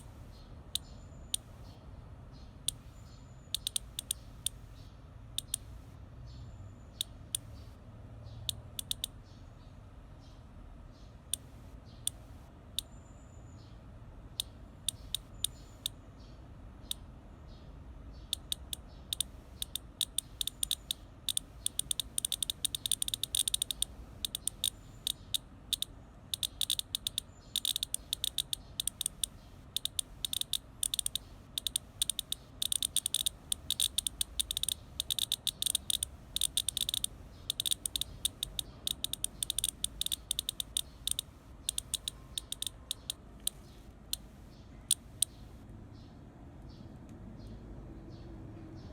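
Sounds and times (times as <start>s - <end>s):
cicada clicking: 0.0s - 1.7s, 2.6s - 4.8s, 5.4s - 5.9s, 6.9s - 7.7s, 8.5s - 9.2s, 11.3s - 13.0s, 14.4s - 16.0s, 18.2s - 45.6s.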